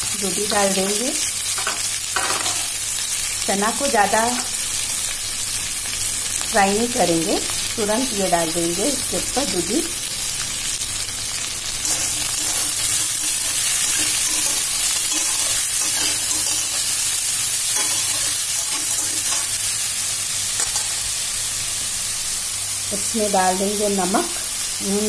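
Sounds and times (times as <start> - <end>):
vegetables sizzling in oil: 0.0 - 25.0
metal spatula scraping pan: 11.8 - 17.0, 17.8 - 19.6.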